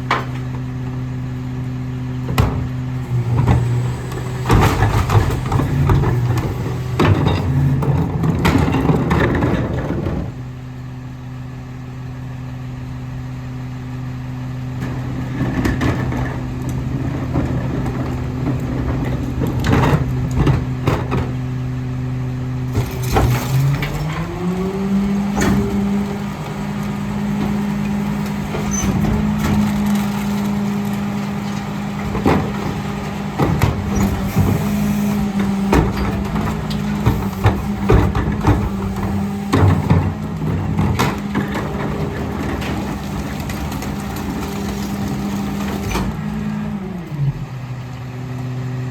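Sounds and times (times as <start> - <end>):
garbage truck diesel engine: 0.0 - 48.9
bins banging and clanking: 2.2 - 10.3, 14.9 - 21.5, 22.7 - 46.7.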